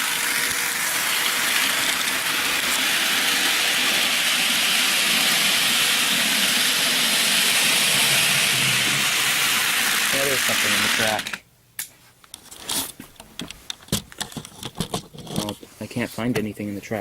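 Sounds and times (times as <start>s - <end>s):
model train motor whirring: 0.0s - 11.4s.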